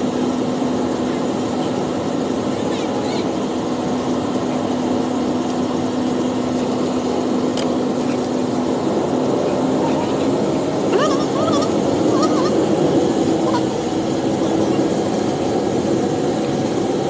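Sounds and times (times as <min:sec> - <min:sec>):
airliner engine hum: 0:00.0 - 0:17.0
high wavering voice: 0:09.8 - 0:13.8.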